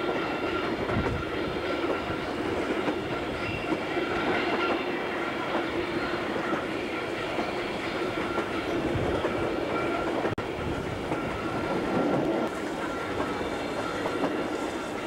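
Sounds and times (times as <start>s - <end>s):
train wheels rumbling and clattering: 0.0s - 15.0s.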